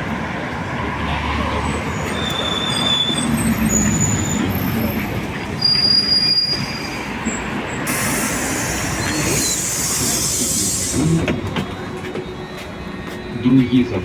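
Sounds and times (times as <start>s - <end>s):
bus engine and road rumble: 0.0s - 14.0s
high brake squeals: 1.7s - 5.0s, 5.6s - 11.4s
compressed air hiss: 7.9s - 11.0s.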